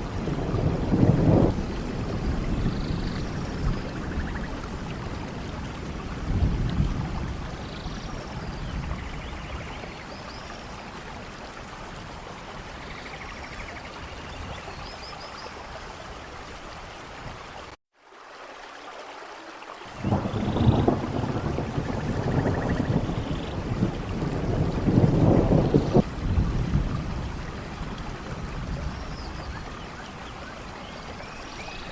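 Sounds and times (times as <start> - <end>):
low rumble of thunder: 0.0 - 14.9, 19.9 - 30.4
heavy rain: 0.0 - 31.9.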